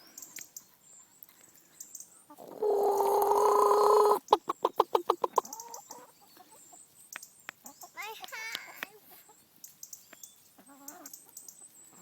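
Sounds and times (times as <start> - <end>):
chicken squawking and clucking: 2.3 - 6.6.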